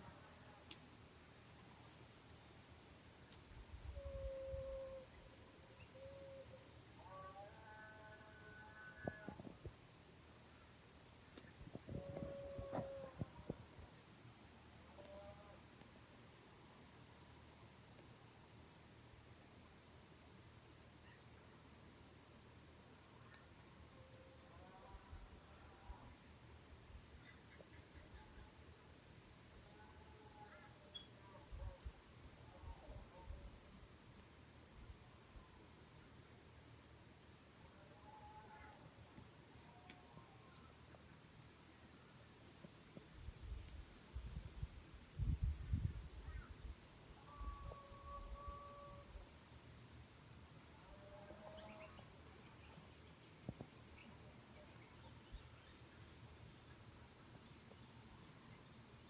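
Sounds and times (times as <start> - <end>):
insects chirring: 3.1 - 9.7, 24.9 - 59.0.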